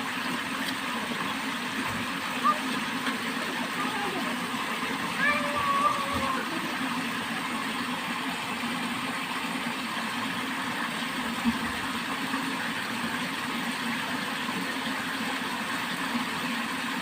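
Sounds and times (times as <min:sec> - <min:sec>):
water rushing along a channel: 0:00.0 - 0:17.0.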